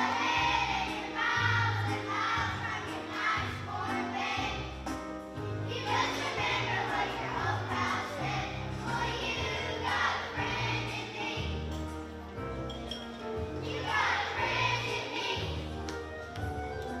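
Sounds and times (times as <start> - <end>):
group of voices singing: 0.0 - 5.0, 5.6 - 12.1, 13.5 - 15.9
instrumental accompaniment: 0.0 - 17.0.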